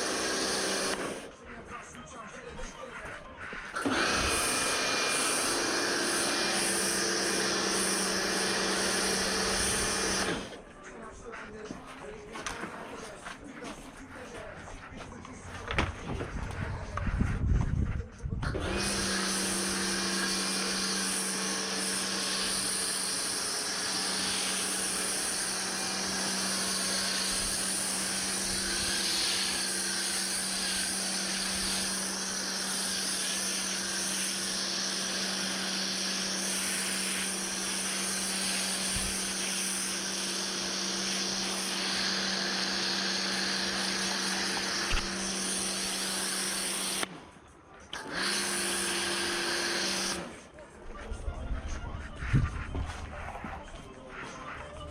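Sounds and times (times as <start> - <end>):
pressure washer motor hum: 0.0 - 1.3, 3.7 - 10.6, 18.4 - 47.1, 47.9 - 50.3
high-pressure water spray hissing: 19.2 - 42.7.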